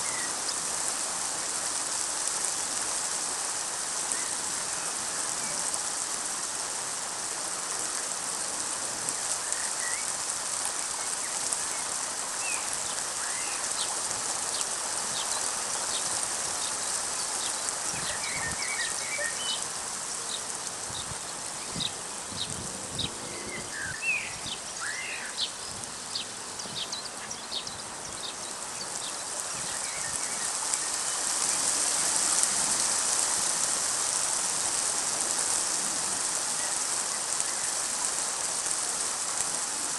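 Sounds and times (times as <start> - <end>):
steady rain hissing: 0.0 - 39.9.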